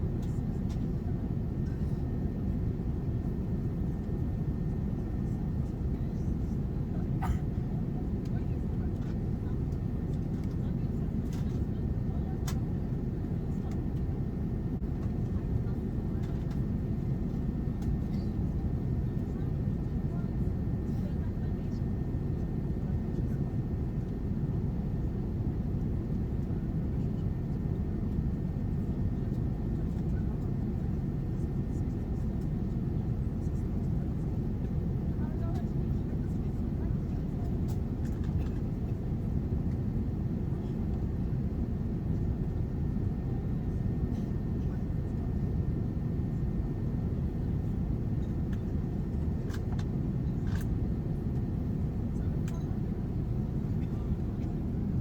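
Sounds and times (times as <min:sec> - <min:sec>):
airliner engines rumbling in cabin: 0:00.0 - 0:55.0.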